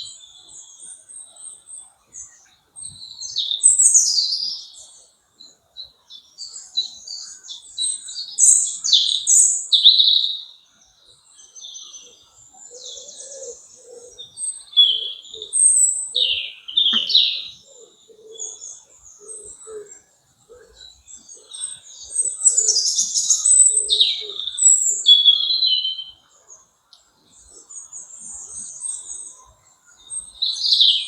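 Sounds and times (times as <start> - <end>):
songbirds chirping and trilling: 0.0 - 31.0
dove cooing: 12.0 - 26.1.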